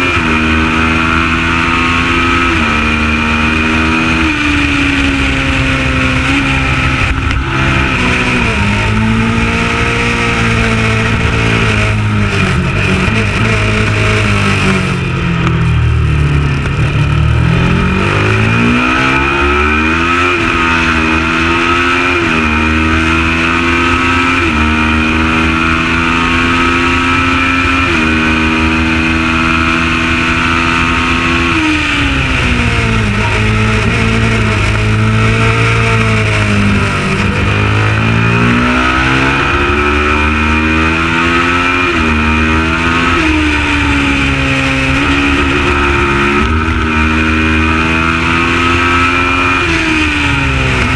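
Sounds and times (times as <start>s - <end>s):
motorcycle engine at full throttle: 0.0s - 50.9s
steady rush of noise: 2.0s - 21.5s.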